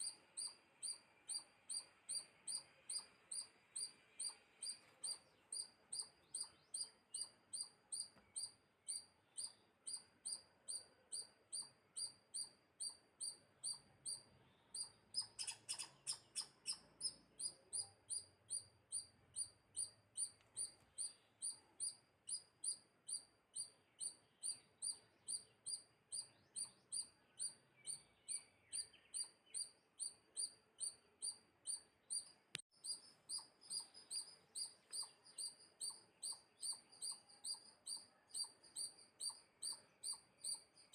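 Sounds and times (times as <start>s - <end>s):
bird chirping: 0.0s - 40.9s.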